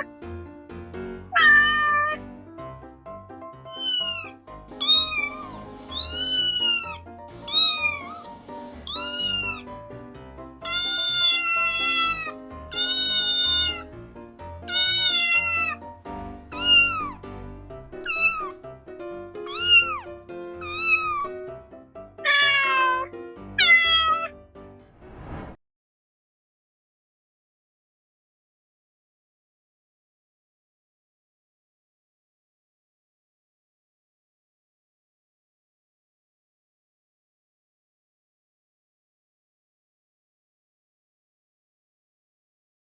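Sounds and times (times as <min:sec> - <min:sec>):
soft background music: 0:00.0 - 0:25.4
cat meowing: 0:01.3 - 0:02.2, 0:03.7 - 0:09.7, 0:10.6 - 0:13.9, 0:14.6 - 0:15.8, 0:16.5 - 0:17.2, 0:18.0 - 0:18.6, 0:19.4 - 0:21.4, 0:22.2 - 0:24.4.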